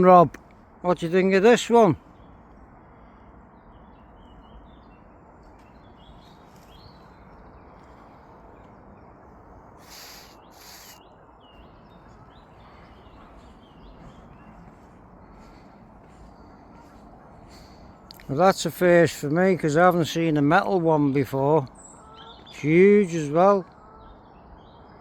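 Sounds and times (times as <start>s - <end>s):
low outdoor rumble: 0.0s - 22.6s
small birds chirping: 0.0s - 25.0s
rustling hisses: 9.8s - 11.0s.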